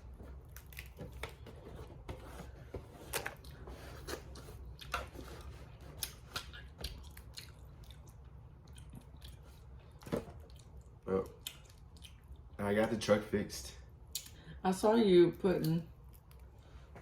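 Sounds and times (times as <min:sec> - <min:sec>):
chewing and mouth smacking: 0:00.4 - 0:01.4, 0:04.6 - 0:12.6, 0:15.6 - 0:16.6.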